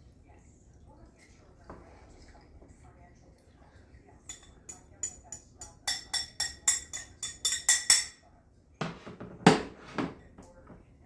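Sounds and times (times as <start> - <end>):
metallic utensil taps: 4.3 - 8.2
utensil clunks: 8.8 - 10.8.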